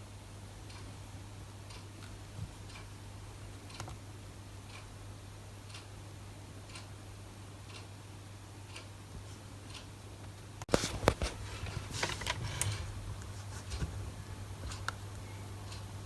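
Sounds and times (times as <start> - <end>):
faint ticking: 0.5 - 10.4.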